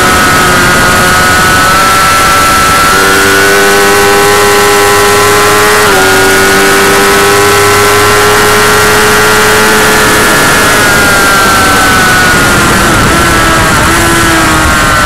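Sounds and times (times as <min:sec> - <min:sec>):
motorcycle engine at high revs: 0:00.0 - 0:15.0
steady rushing noise: 0:00.0 - 0:15.0.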